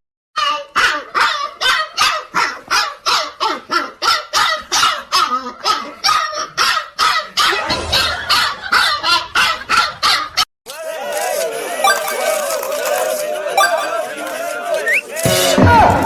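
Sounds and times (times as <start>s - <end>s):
dog barking: 0.8s - 7.6s.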